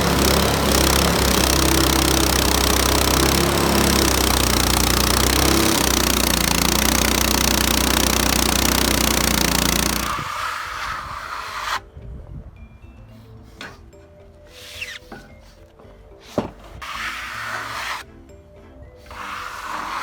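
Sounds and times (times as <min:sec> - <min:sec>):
engine droning: 0:00.0 - 0:10.5
band saw blade cutting log: 0:00.0 - 0:11.8, 0:16.3 - 0:18.1, 0:19.1 - 0:20.0.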